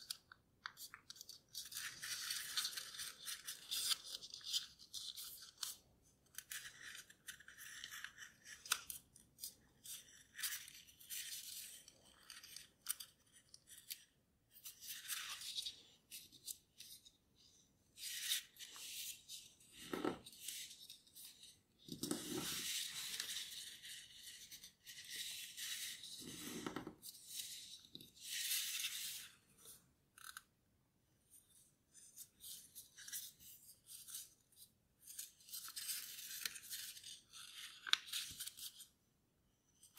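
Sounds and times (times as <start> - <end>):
paper rustling and crinkling: 0.0 - 5.8.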